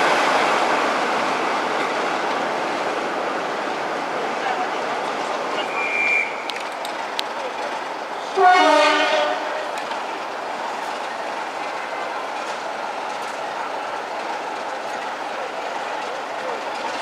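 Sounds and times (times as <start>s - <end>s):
diesel train running: 0.0s - 17.0s
train horn: 8.3s - 9.7s.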